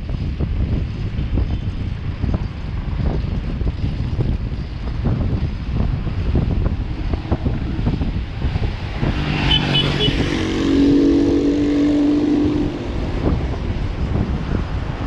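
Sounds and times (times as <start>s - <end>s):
wind and road noise rumble: 0.0s - 15.0s
motor vehicle passing: 5.9s - 15.0s.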